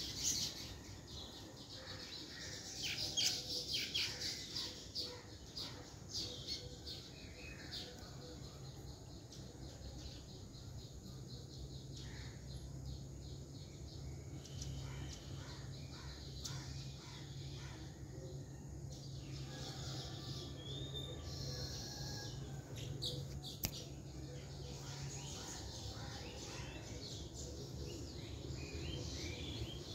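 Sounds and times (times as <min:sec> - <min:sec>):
small birds chirping: 0:18.9 - 0:29.9
sharp click: 0:23.6 - 0:23.8.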